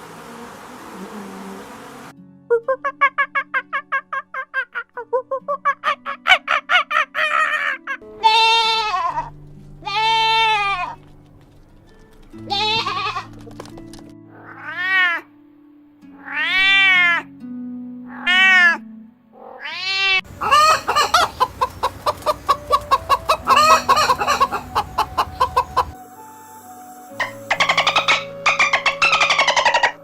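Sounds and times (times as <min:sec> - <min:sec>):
background music with low notes: 0:02.1 - 0:30.0
cat meowing: 0:14.4 - 0:15.3, 0:16.2 - 0:17.3, 0:19.4 - 0:21.1.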